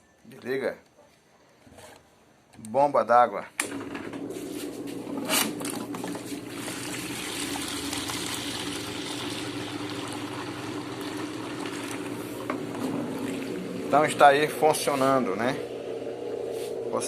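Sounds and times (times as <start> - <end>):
drain pump motor humming: 3.6 - 17.0
water trickling and gushing: 6.1 - 16.5.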